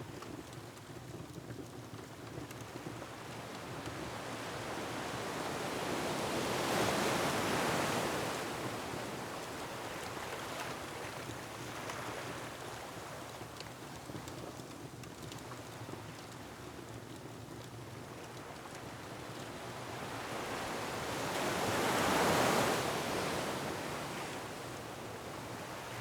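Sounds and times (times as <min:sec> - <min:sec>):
faint wood fire crackles: 0:00.0 - 0:05.6, 0:07.8 - 0:21.5.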